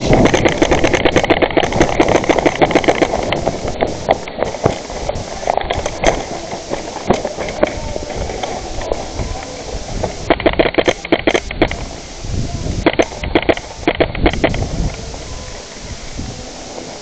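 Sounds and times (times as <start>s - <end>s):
airsoft guns firing: 0.0s - 11.9s.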